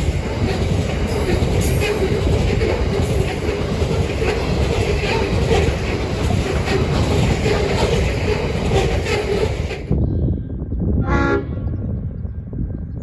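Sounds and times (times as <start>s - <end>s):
train wagons clattering past: 0.0s - 10.0s
low train rumble: 0.0s - 13.0s.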